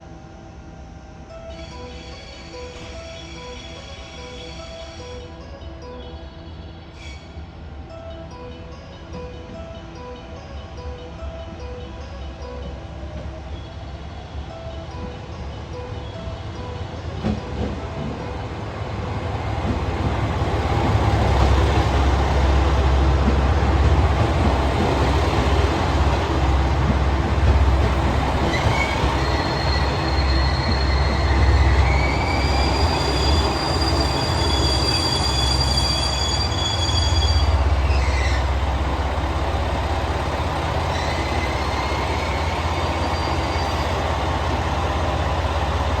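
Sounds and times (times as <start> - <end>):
diesel train rumble: 12.6 - 46.0
diesel engines idling: 18.6 - 33.8, 37.4 - 46.0
brakes squealing: 19.6 - 46.0.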